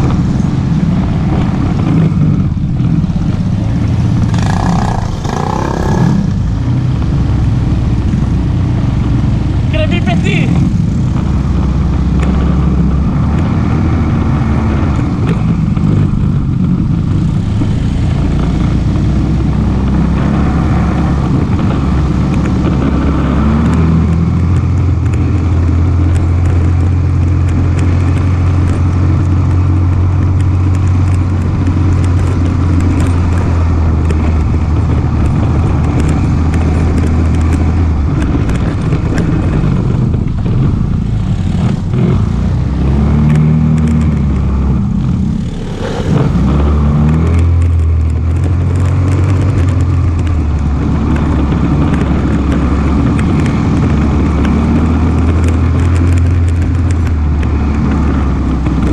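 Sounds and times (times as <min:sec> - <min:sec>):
atv engine running: 0:00.0 - 0:58.9.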